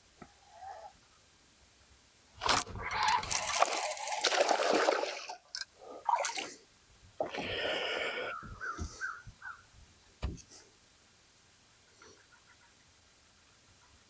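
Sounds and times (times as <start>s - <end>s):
water splashing and sloshing: 2.4s - 6.6s.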